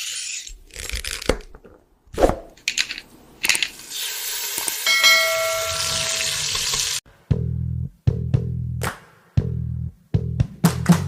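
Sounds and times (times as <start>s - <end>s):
metallic clang ringing: 4.9s - 6.5s
music with bass guitar: 7.1s - 11.0s.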